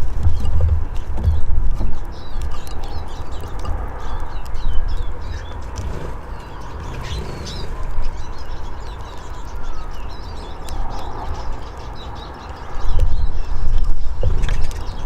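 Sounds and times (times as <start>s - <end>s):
birds twittering: 0.0s - 15.0s.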